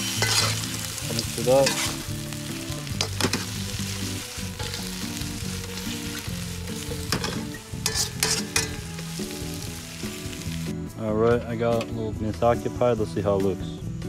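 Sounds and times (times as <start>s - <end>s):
utensil scraping a wok: 0.0s - 10.7s
food sizzling in hot oil: 0.0s - 10.9s
background music: 0.0s - 14.0s.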